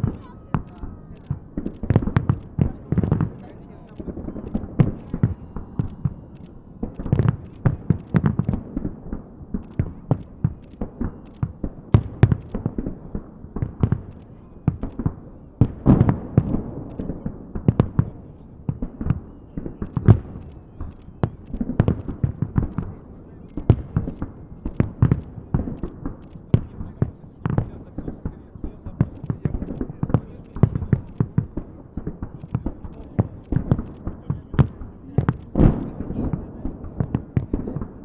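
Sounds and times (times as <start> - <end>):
fireworks bursts and bangs: 0.0 - 38.0.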